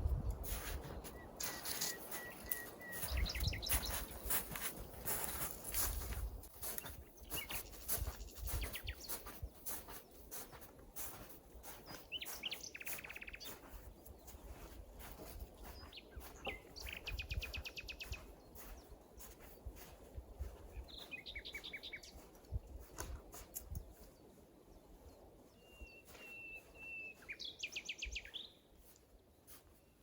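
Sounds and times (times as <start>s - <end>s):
wild songbirds calling: 0.2s - 29.0s
bird trills: 1.1s - 4.0s.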